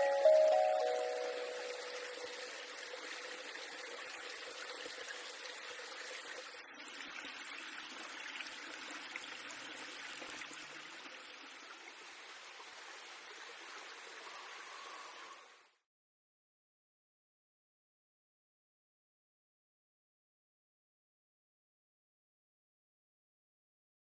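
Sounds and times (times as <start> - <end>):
running water rushing: 0.0 - 15.7.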